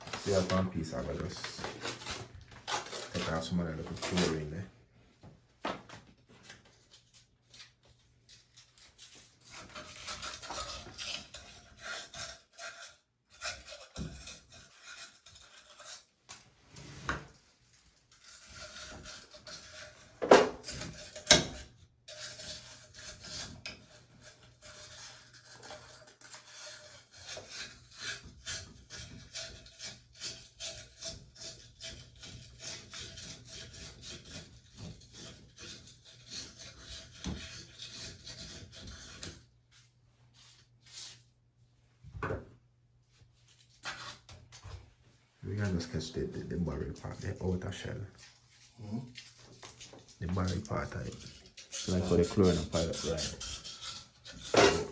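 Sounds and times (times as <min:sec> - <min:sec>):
sandpaper scraping: 0:51.1 - 0:54.9.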